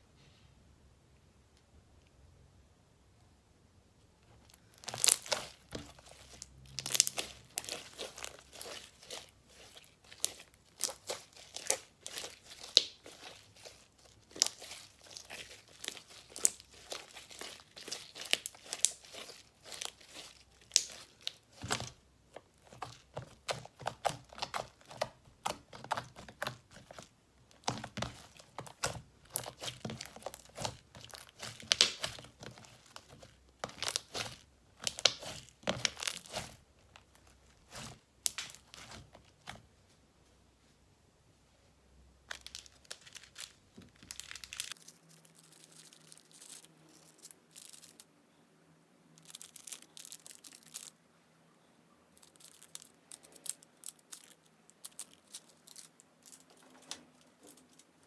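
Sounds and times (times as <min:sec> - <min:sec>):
hands squishing sticky slime: 0:04.5 - 0:39.6, 0:42.3 - 0:46.6.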